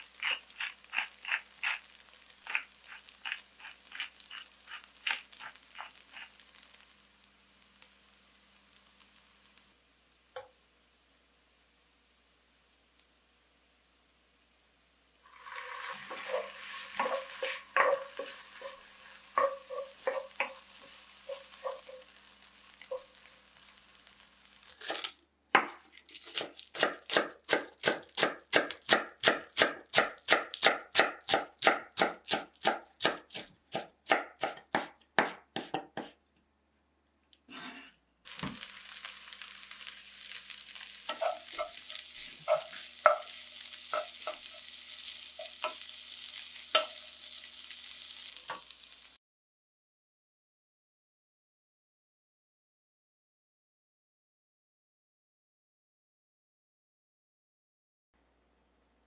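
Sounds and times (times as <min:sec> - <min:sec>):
food sizzling in frying pan: 0:00.0 - 0:35.5, 0:37.6 - 0:49.2
knife chopping on cutting board: 0:25.6 - 0:36.2, 0:42.5 - 0:43.3.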